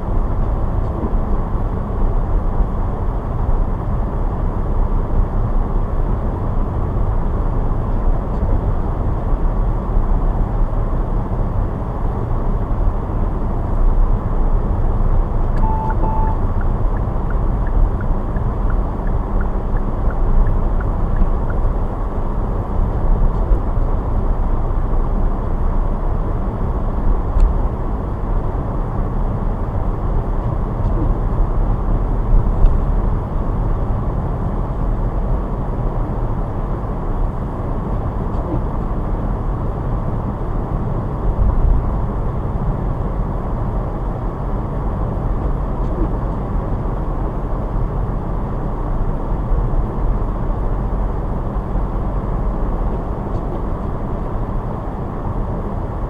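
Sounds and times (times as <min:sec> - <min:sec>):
car engine and tyre rumble: 0:00.0 - 0:56.0
short beeps: 0:15.6 - 0:17.1.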